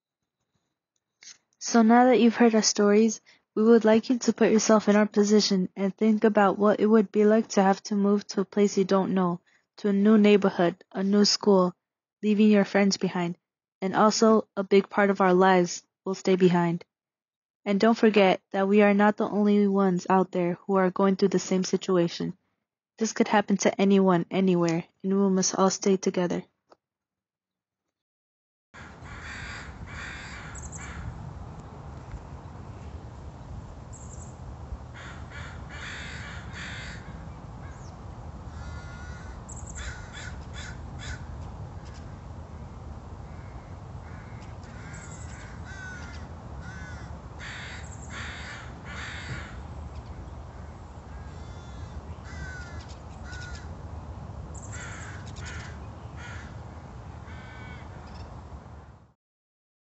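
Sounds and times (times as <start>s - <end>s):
birds calling: 28.8s - 53.8s, 54.5s - 58.4s
low outdoor rumble: 28.8s - 59.1s.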